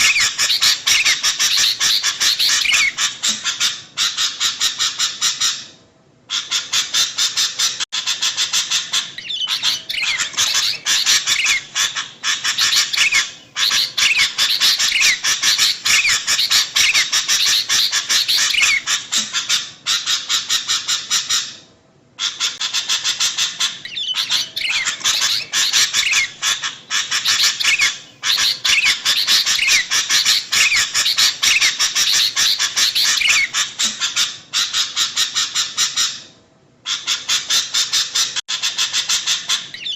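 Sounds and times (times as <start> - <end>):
bulbuls chattering: 0.0 - 3.3, 8.8 - 19.4, 23.9 - 33.7.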